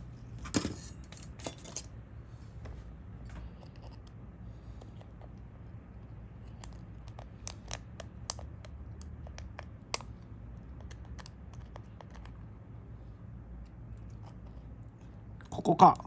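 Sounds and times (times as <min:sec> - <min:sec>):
steady low hum: 0:00.0 - 0:16.0
small tools clicking and tapping: 0:06.4 - 0:12.4.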